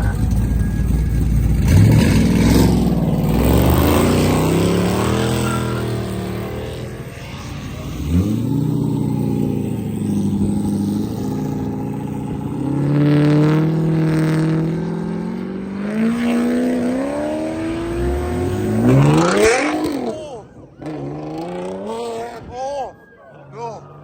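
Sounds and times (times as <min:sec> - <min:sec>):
car engine accelerating hard: 0:00.0 - 0:24.0.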